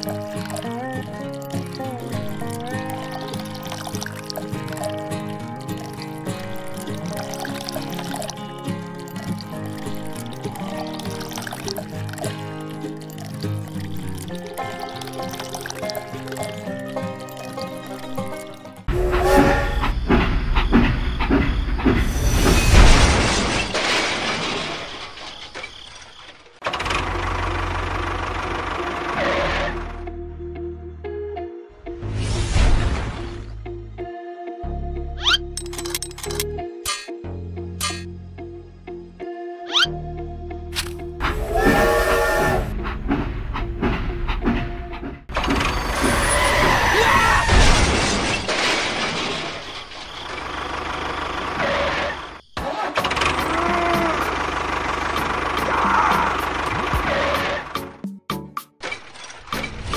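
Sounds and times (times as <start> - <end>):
crash smash and clatter: 22.0 - 26.3, 45.3 - 50.7
tractor engine chugging: 26.6 - 29.9, 50.1 - 57.8.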